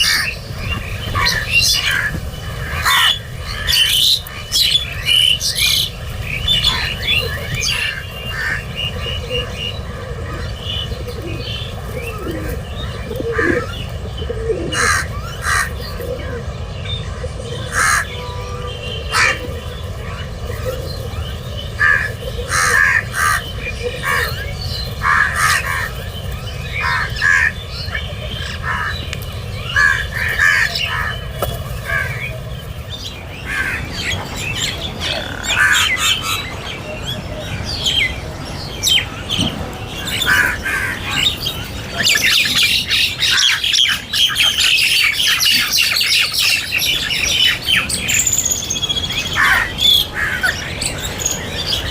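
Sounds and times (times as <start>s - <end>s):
crows cawing: 0.0s - 11.2s, 14.5s - 16.0s, 17.6s - 20.2s, 21.7s - 26.0s, 26.7s - 32.4s, 33.3s - 36.8s, 39.9s - 47.8s, 49.3s - 50.8s
chatter of many birds: 0.0s - 51.9s.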